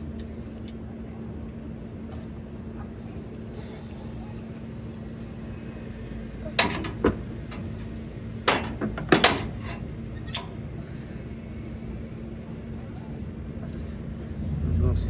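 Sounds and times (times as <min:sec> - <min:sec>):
steady low hum: 0:00.0 - 0:15.0
metal parts clinking and knocking: 0:06.6 - 0:10.6.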